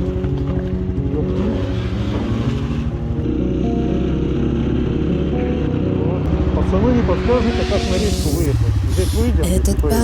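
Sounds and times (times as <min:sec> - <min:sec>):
small motorcycle engine running: 0:00.0 - 0:06.8
background music: 0:00.0 - 0:10.0.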